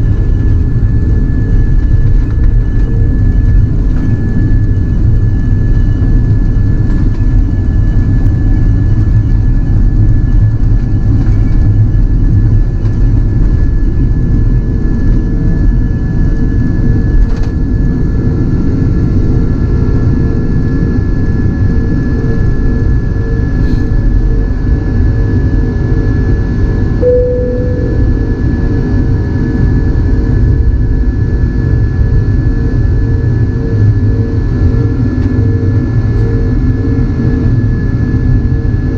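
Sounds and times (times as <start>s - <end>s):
jet engines rumbling in cabin: 0.0s - 38.9s
faint steady tones: 27.0s - 28.3s.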